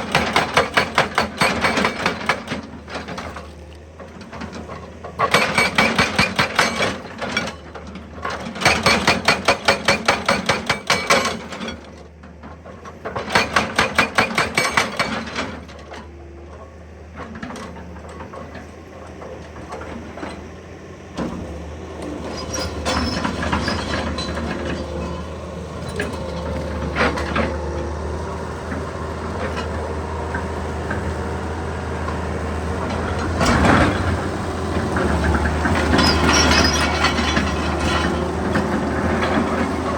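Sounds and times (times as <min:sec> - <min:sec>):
hydraulic breaker hammering: 0:00.0 - 0:02.9, 0:05.2 - 0:07.2, 0:08.4 - 0:11.6, 0:13.2 - 0:15.8
excavator engine humming: 0:00.0 - 0:09.9, 0:10.7 - 0:39.9.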